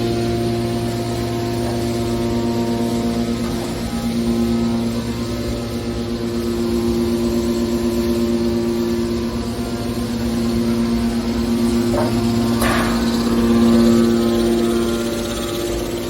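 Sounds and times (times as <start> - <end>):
industrial machinery humming: 0.0 - 16.0.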